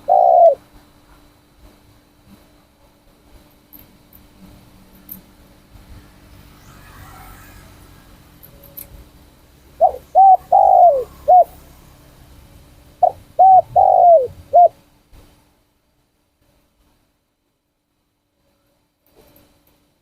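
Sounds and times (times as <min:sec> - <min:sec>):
dove cooing: 0:00.0 - 0:00.7, 0:09.7 - 0:11.7, 0:13.0 - 0:14.8.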